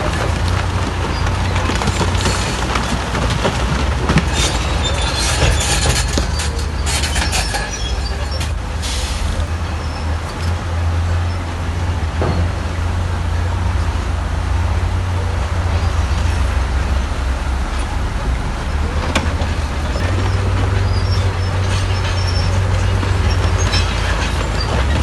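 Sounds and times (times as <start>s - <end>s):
diesel machinery engine rumble: 0.0s - 25.0s
faint high squeaks: 4.4s - 10.2s.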